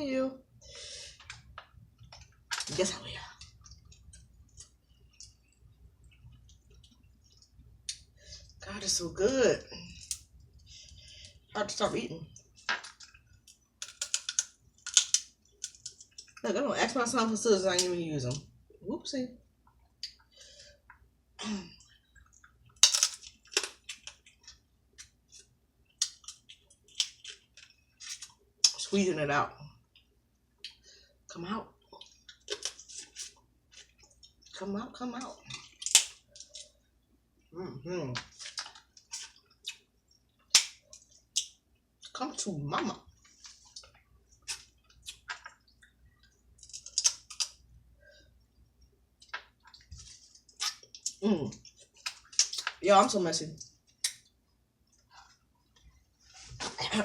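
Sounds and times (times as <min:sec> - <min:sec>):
crab shell cracking: 0:12.3 - 0:16.4, 0:22.2 - 0:28.8, 0:35.4 - 0:36.7, 0:40.4 - 0:41.6, 0:46.5 - 0:47.7, 0:53.9 - 0:54.3.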